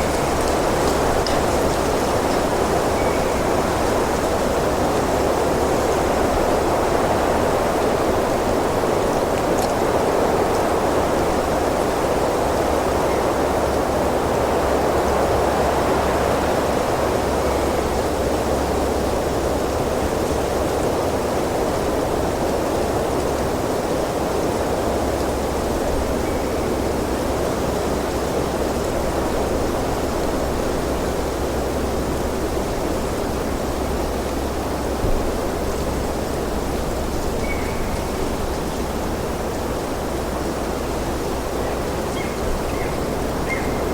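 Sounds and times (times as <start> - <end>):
wind blowing: 0.0 - 11.6.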